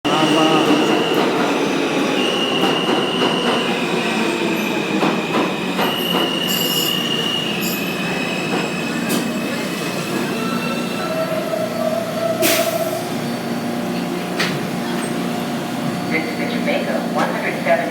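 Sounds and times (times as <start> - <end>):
train cars rumbling: 0.0 - 17.9
train wheels squealing: 2.0 - 12.9.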